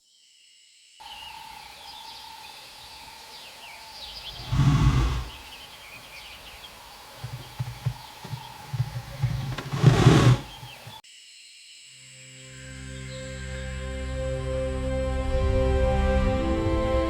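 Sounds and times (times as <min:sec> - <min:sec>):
wild birds chirping: 0:01.6 - 0:11.0.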